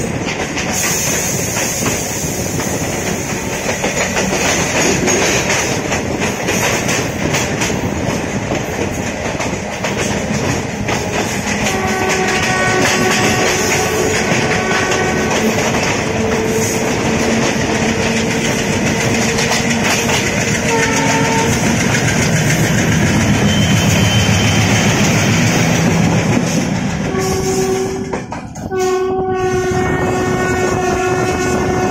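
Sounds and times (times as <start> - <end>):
train wheels rumbling on rail: 0.0 - 31.9
locomotive horn: 11.5 - 18.3, 20.0 - 21.8, 27.0 - 31.9.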